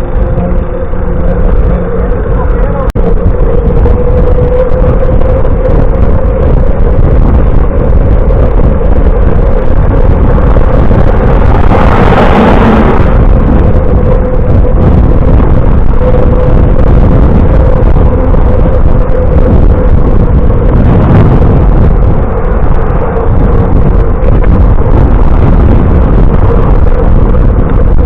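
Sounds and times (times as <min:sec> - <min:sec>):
road noise: 0:00.0 - 0:28.0
steady hum: 0:00.0 - 0:28.0
wind rumble on microphone: 0:00.0 - 0:28.0.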